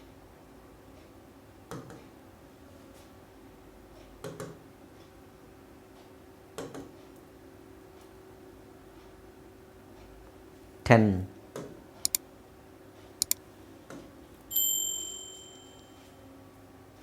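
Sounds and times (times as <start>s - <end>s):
faint clicks: 13.2s - 13.4s.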